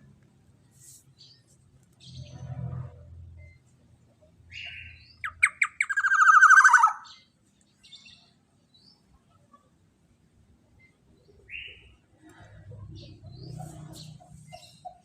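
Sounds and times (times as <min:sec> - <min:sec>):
bird harsh rattling call: 0:05.2 - 0:07.0.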